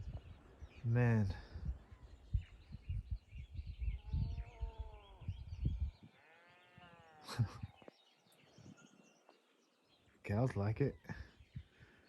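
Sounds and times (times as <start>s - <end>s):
wind rumble on microphone: 0.0s - 6.2s, 7.3s - 7.8s
birds chirping faintly: 0.0s - 12.0s.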